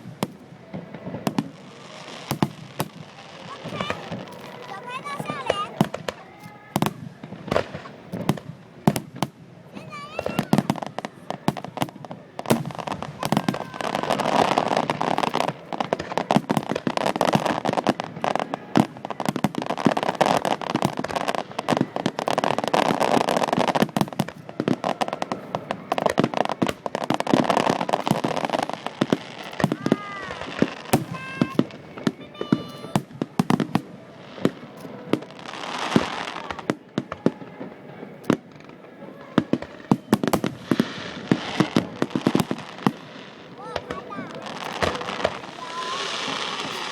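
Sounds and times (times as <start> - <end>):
fireworks bangs and crackling: 0.0 - 46.9
whistling fireworks: 0.0 - 46.9.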